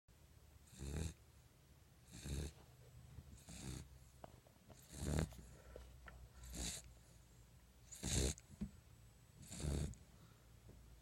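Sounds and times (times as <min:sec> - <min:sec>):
puppy snoring: 0:00.6 - 0:01.2, 0:02.0 - 0:02.7, 0:03.3 - 0:04.2, 0:04.8 - 0:05.7, 0:06.3 - 0:08.6, 0:09.4 - 0:10.1.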